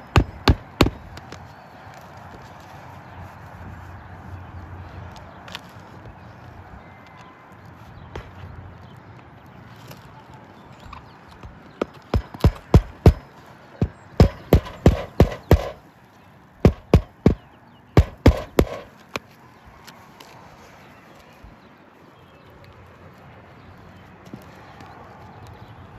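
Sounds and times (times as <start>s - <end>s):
hammer knocking: 0.1s - 1.0s, 11.8s - 15.8s, 16.7s - 17.4s, 18.0s - 18.9s.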